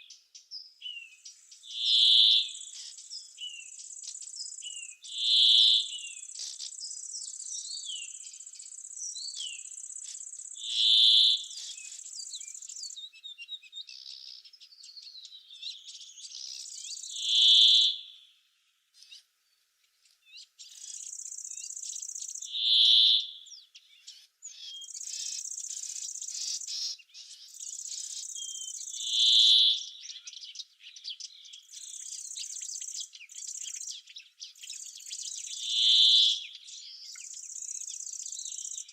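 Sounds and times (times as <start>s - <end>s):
small birds chirping: 0.0s - 38.9s
insects buzzing: 1.2s - 12.9s.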